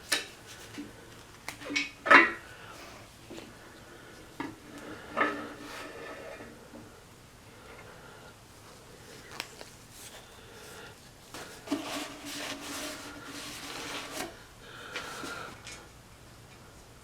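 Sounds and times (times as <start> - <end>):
rubbing and scraping: 9.2 - 15.6.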